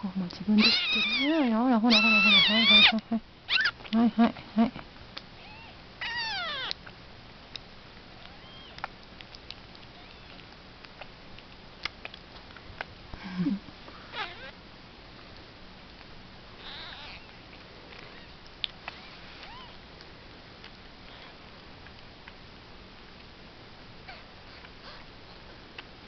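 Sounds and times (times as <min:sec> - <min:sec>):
kitten mewing: 0:00.6 - 0:03.8, 0:05.4 - 0:06.8, 0:09.9 - 0:10.4, 0:14.1 - 0:14.6, 0:16.6 - 0:17.4.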